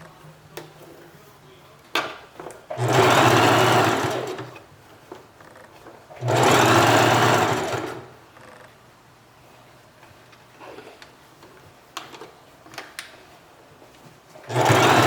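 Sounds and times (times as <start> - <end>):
sewing machine stitching: 2.7 - 4.6, 6.1 - 8.2, 14.4 - 15.0.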